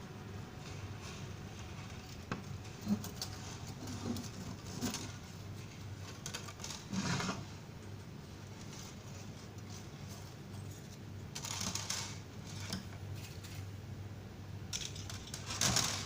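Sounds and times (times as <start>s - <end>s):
low steady hum: 0.0s - 16.0s
scraping rustle: 0.6s - 7.7s, 8.4s - 13.7s.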